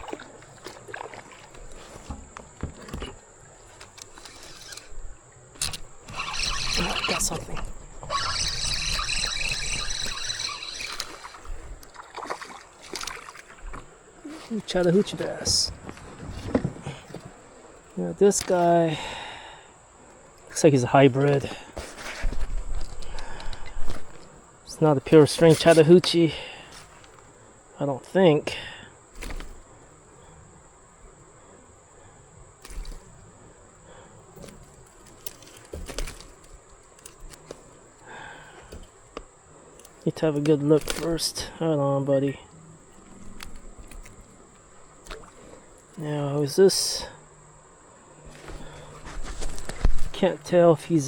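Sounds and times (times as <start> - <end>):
water splashing around a kayak: 0.0 - 27.7, 29.0 - 47.1
high insect drone: 0.0 - 51.0
steady high whir: 5.6 - 11.8.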